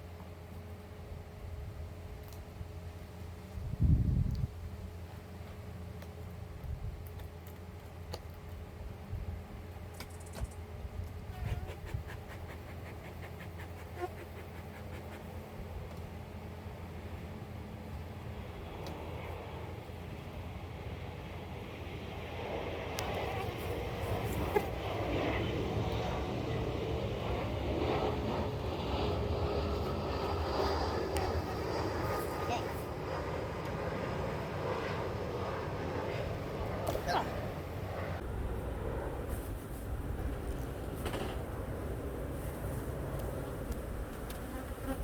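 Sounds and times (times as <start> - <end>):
honeybees humming: 11.3 - 15.5, 42.1 - 45.0
quick scraping clicks on wood: 11.4 - 15.4.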